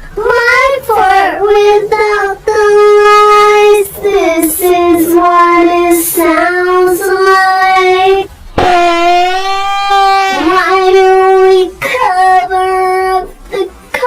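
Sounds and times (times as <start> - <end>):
high solo voice singing: 8.6 - 11.8.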